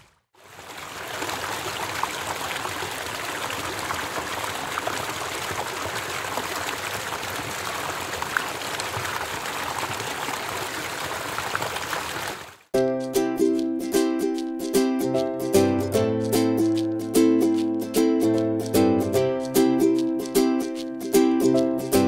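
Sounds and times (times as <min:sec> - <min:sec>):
creek flowing over rocks: 0:00.0 - 0:12.7
small water splashes: 0:00.0 - 0:12.7.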